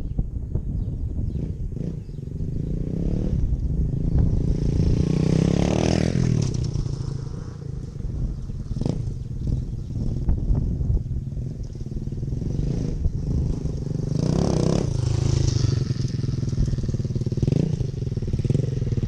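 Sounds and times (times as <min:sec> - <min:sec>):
dirt bike engine revving: 0:01.4 - 0:10.3, 0:11.9 - 0:19.0.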